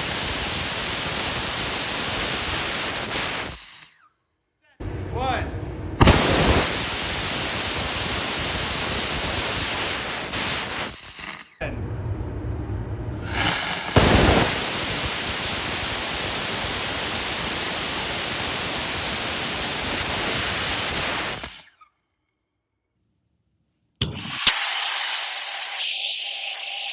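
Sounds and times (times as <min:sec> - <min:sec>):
rocket engine firing: 0:04.8 - 0:11.0, 0:11.6 - 0:21.5.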